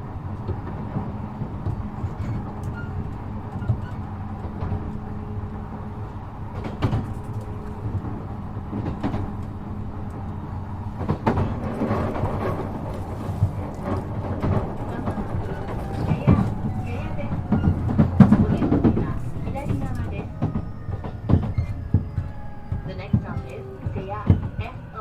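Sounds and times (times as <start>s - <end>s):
electric train low hum: 0.0s - 25.0s.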